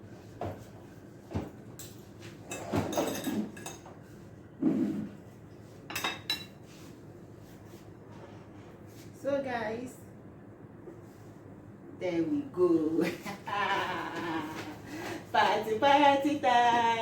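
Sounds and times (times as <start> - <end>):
dishes and cutlery clattering: 1.8 - 4.0, 5.9 - 6.6.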